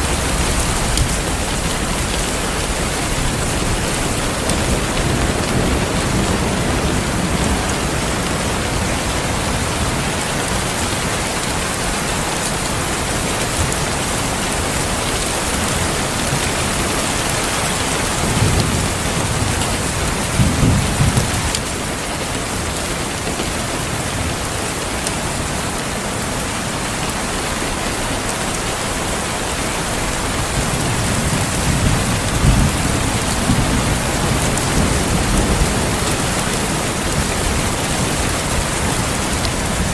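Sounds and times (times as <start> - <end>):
heavy rain: 0.0 - 39.9
rolling thunder: 13.6 - 22.0, 30.0 - 39.9.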